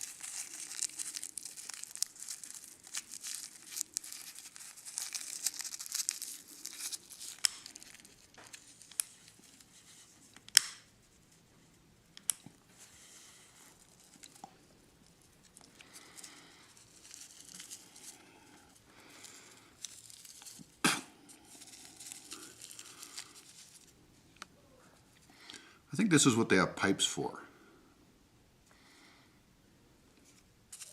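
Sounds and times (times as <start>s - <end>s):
paper and tobacco crinkling: 0.0s - 11.5s, 12.2s - 24.0s, 30.2s - 30.9s.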